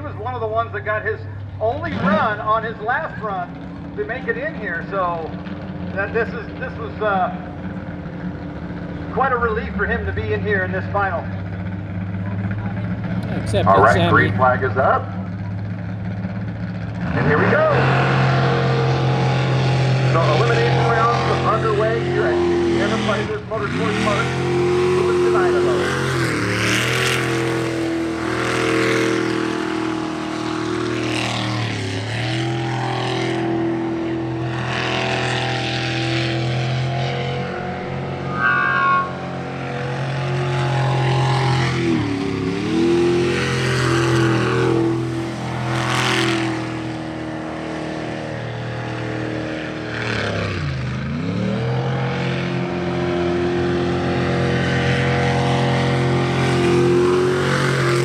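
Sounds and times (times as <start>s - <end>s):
boat engine revving: 51.2s - 58.0s.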